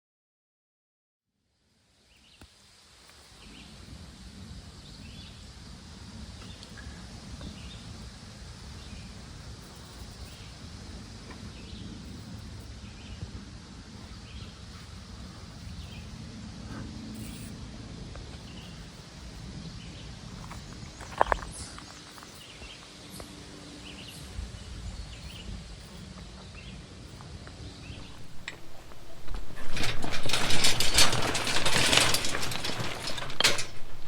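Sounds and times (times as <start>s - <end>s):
low rumbling background: 27.9s - 34.0s.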